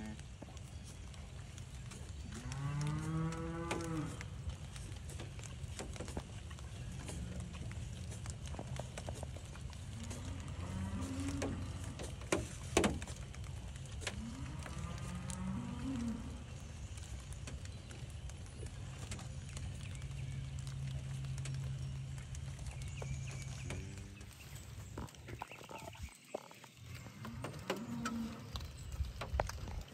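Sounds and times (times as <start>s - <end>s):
cattle mooing: 2.3s - 4.3s, 9.9s - 12.2s, 14.1s - 16.5s, 27.0s - 28.6s.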